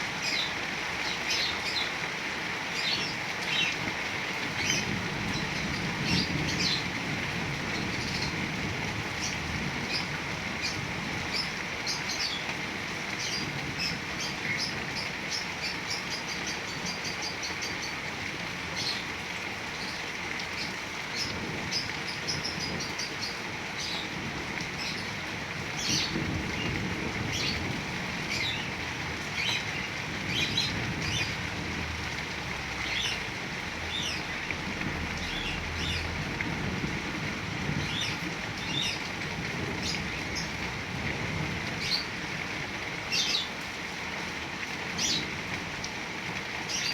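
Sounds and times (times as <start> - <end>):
heavy rain falling: 0.0 - 46.9
birds chirping: 25.8 - 36.4.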